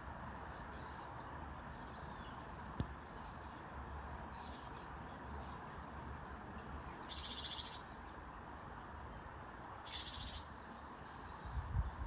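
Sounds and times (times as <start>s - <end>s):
low wind rumble: 0.0s - 12.0s
faint high bird chirps: 6.9s - 7.9s, 9.8s - 11.4s.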